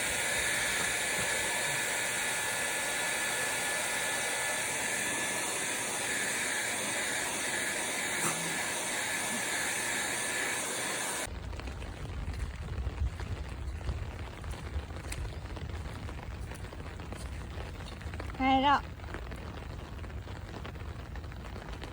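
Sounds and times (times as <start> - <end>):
hair dryer blowing: 0.0 - 11.3.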